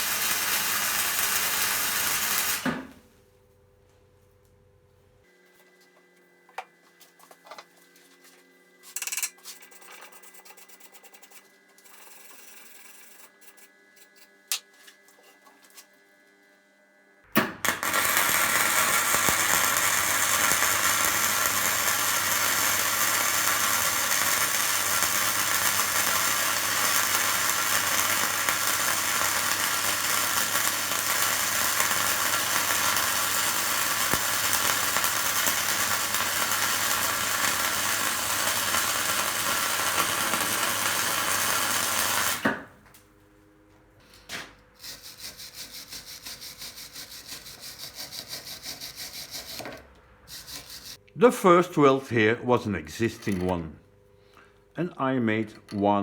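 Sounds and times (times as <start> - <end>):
welder crackling: 0.0 - 3.0, 17.3 - 42.6, 50.3 - 52.0.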